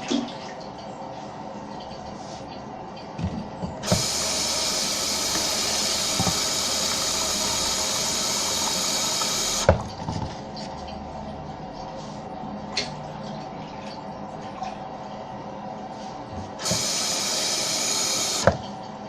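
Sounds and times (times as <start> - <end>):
water hissing in toilet tank: 3.8 - 9.8, 16.6 - 18.6.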